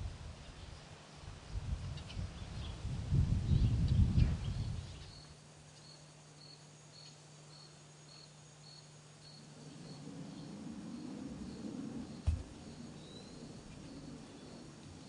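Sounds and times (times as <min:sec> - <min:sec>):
steady low hum: 0:00.0 - 0:15.0
cricket chirping: 0:04.5 - 0:15.0
low rumble: 0:09.4 - 0:15.0.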